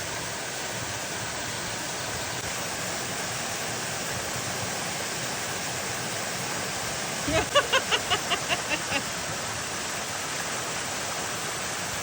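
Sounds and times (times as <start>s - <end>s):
waterfall rushing: 7.3s - 11.1s.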